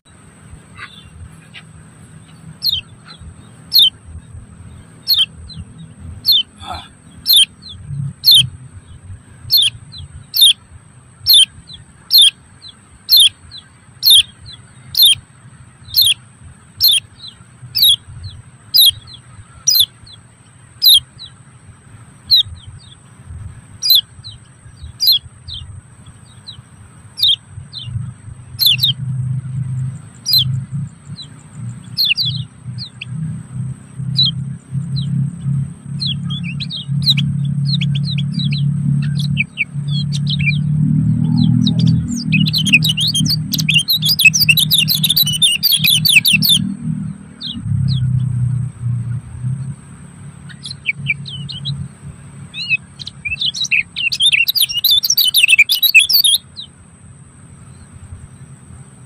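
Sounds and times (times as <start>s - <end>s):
bird chirping: 0.0s - 59.0s
low rumble: 27.2s - 54.8s
thin high steady tone: 29.8s - 56.8s.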